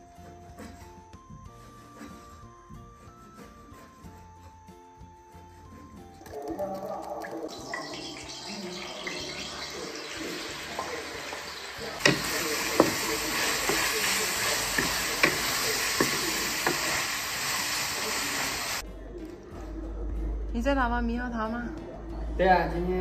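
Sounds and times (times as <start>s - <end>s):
beef sizzling in hot oil: 7.4s - 18.8s
spatula knocking against wok: 12.0s - 16.9s.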